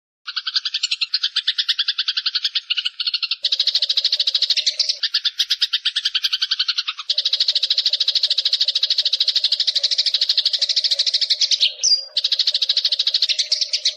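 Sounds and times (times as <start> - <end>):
sparrows chattering: 0.3 - 13.9.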